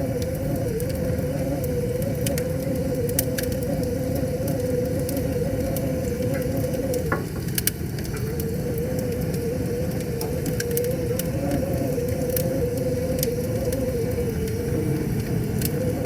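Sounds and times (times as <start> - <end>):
wood fire crackling: 0.0 - 16.0
wavering hum: 8.1 - 16.0
steady rushing noise: 9.1 - 16.0.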